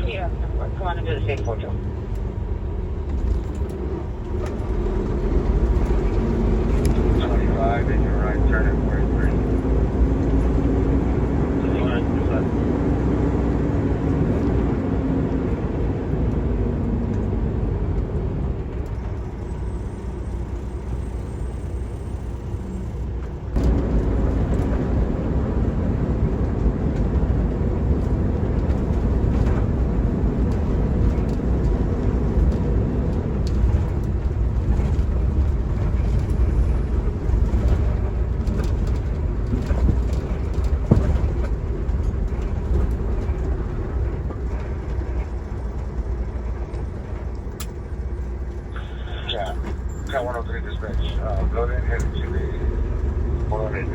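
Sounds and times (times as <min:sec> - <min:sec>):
road noise: 0:00.0 - 0:53.9
truck engine rumble: 0:00.0 - 0:53.9.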